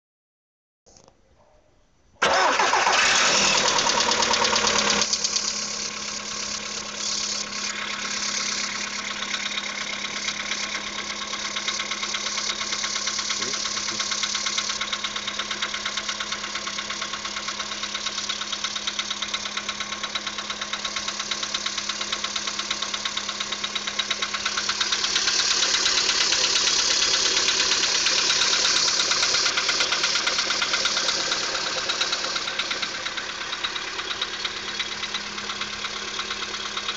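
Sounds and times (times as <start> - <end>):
engine running with knock: 10.6 - 36.9.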